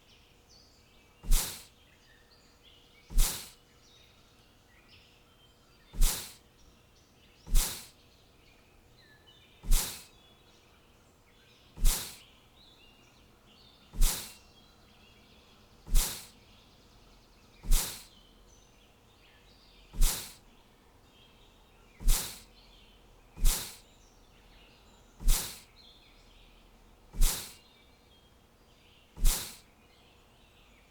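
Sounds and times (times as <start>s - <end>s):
faint bird chirps: 0.0s - 30.9s
whooshing swish: 1.3s - 1.6s, 3.1s - 3.5s, 6.0s - 6.4s, 7.5s - 7.9s, 9.7s - 10.1s, 11.8s - 12.2s, 14.0s - 14.4s, 15.9s - 16.3s, 17.6s - 18.1s, 20.0s - 20.4s, 22.0s - 22.4s, 23.4s - 23.8s, 25.2s - 25.6s, 27.2s - 27.6s, 29.2s - 29.6s.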